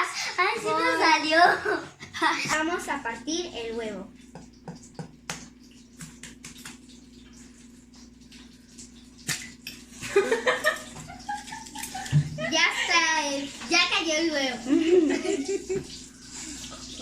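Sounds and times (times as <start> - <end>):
egg tapped against a mug: 4.3 - 6.8.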